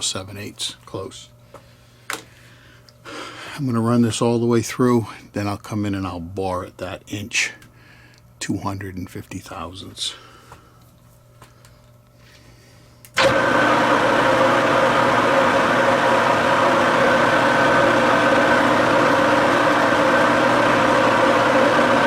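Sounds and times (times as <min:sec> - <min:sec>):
metal lathe geared whine: 0:13.2 - 0:22.0.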